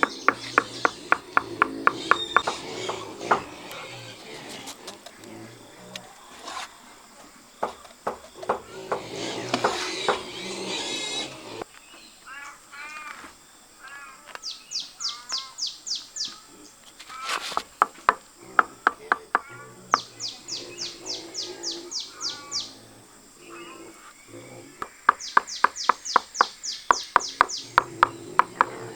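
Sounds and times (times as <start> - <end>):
sharp knocks: 0.0 - 3.8, 7.6 - 11.6, 17.6 - 20.1, 24.8 - 28.9
bird chirping: 0.0 - 28.9.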